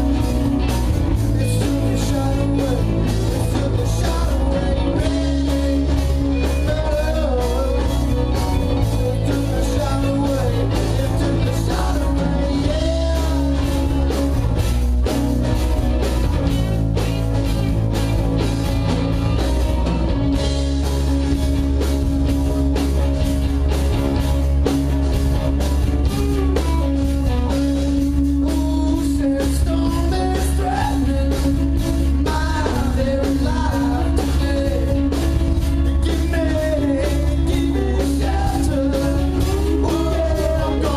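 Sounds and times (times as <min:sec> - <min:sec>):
person singing: 0:00.0 - 0:14.6, 0:26.1 - 0:40.9
bass guitar: 0:00.0 - 0:40.9
electric guitar: 0:00.0 - 0:40.9
steady drum beat: 0:00.0 - 0:40.9.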